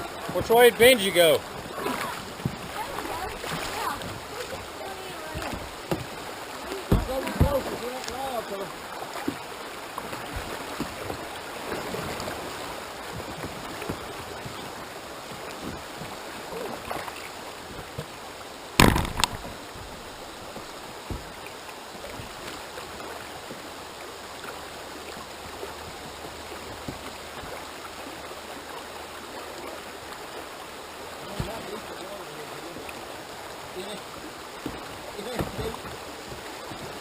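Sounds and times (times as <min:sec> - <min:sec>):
river water rushing: 0:00.0 - 0:37.0
loud sharp knocks: 0:18.8 - 0:19.5.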